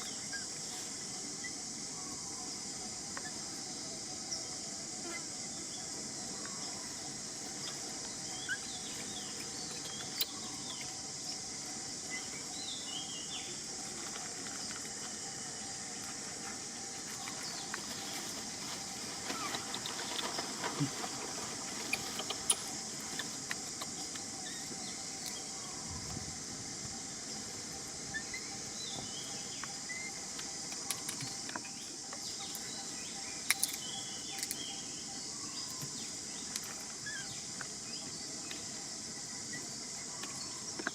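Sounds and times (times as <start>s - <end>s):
insect buzz: 0.0s - 40.9s
bird chirps: 27.4s - 38.1s.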